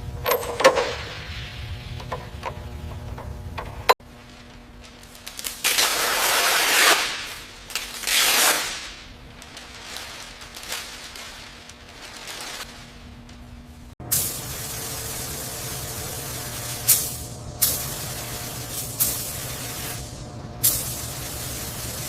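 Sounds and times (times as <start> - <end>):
rushing spray hisses: 14.1 - 22.0.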